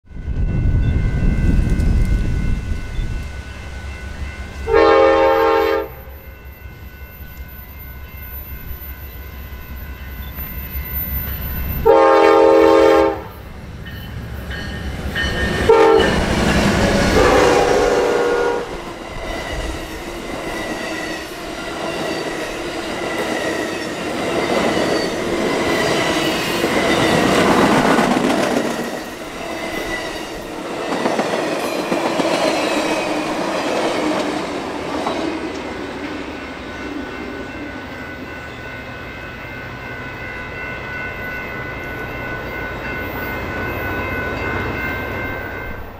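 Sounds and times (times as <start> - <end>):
train air horn blasts: 4.6 - 6.2, 11.8 - 13.4, 15.7 - 16.3, 17.0 - 18.8.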